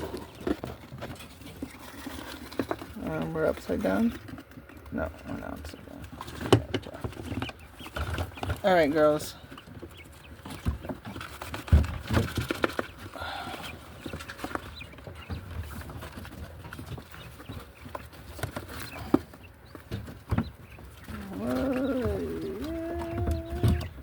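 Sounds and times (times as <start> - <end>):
hens calling: 12.4 - 24.0.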